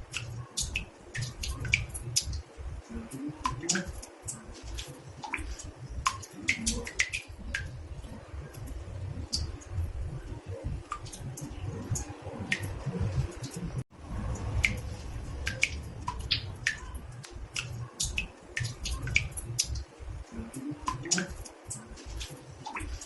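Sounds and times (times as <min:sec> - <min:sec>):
water drops plinking into bathtub: 0:00.0 - 0:13.6, 0:14.3 - 0:23.0
low steady rumble: 0:05.6 - 0:21.0.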